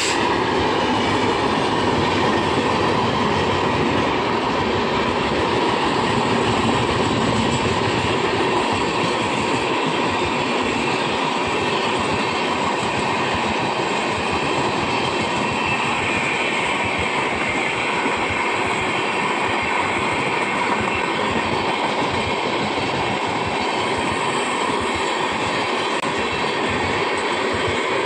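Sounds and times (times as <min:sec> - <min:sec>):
train coaches passing at speed: 0:00.0 - 0:28.0
wheels clickety-clack on rails: 0:00.0 - 0:28.0.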